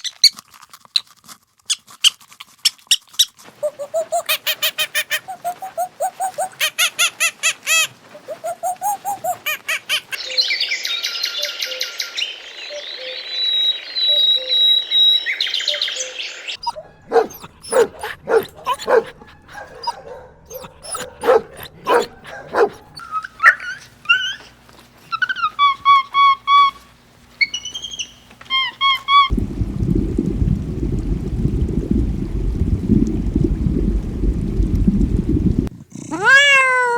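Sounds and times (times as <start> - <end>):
rapid squeaky animal calls: 1.7 - 10.2, 16.6 - 29.3
running water: 3.4 - 10.3, 16.3 - 35.7
bird chorus chirping: 3.6 - 24.6, 27.4 - 29.3.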